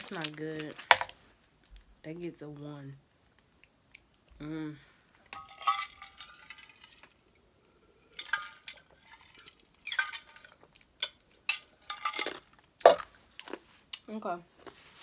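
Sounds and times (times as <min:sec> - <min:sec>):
small hard items clinking: 0:00.0 - 0:01.2, 0:05.3 - 0:07.2, 0:08.1 - 0:13.6.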